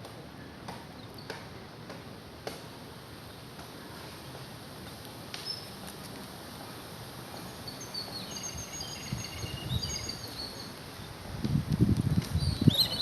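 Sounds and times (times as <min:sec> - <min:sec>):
outdoor background noise: 0:00.0 - 0:13.0
small birds chirping: 0:07.4 - 0:11.2, 0:12.0 - 0:13.0.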